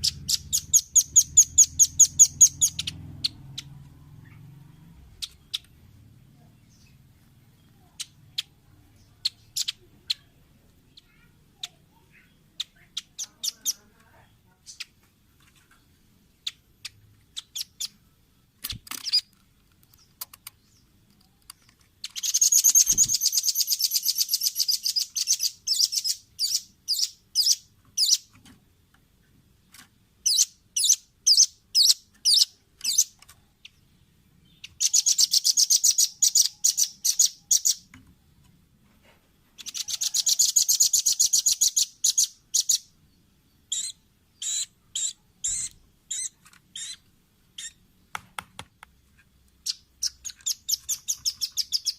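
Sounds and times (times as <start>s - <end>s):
bird high-pitched rapid trills: 0.0s - 5.7s, 22.0s - 28.3s, 34.6s - 37.9s, 39.6s - 42.9s, 43.6s - 47.8s, 49.6s - 51.9s.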